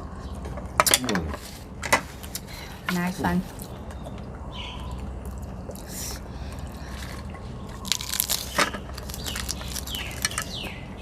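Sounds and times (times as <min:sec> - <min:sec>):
birds chirping: 0:00.0 - 0:01.4, 0:02.4 - 0:11.0
steady low hum: 0:00.0 - 0:11.0
crisp food being chewed: 0:03.5 - 0:10.7.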